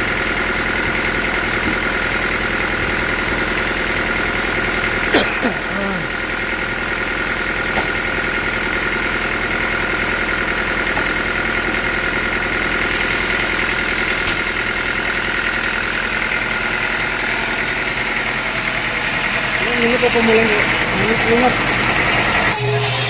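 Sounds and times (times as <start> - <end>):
sawmill machinery whining: 0.0 - 23.0.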